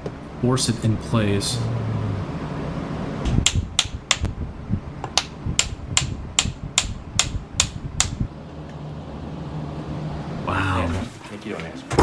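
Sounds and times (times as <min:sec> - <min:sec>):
small hammer tapping on knife: 0:03.5 - 0:04.3, 0:05.2 - 0:08.2.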